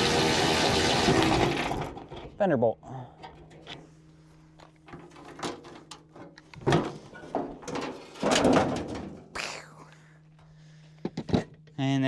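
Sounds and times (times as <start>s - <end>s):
sheet metal clunks and scrapes: 4.9s - 9.2s.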